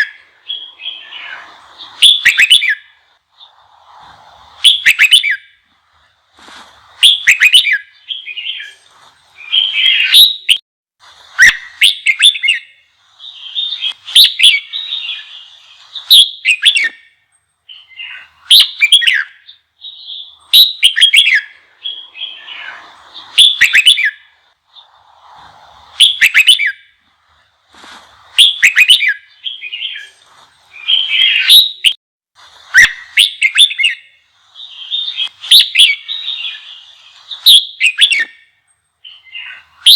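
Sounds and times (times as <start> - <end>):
bulbul singing: 0.0 - 3.7, 4.6 - 10.6, 11.4 - 25.0, 25.9 - 32.0, 32.8 - 39.9.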